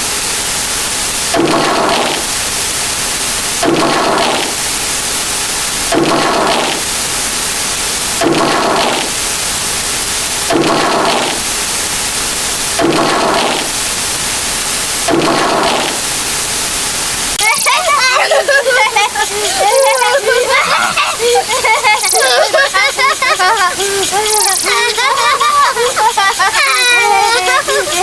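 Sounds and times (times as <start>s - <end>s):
short repeating sound effect: 0.0s - 17.4s
steady loud hiss: 0.0s - 28.0s.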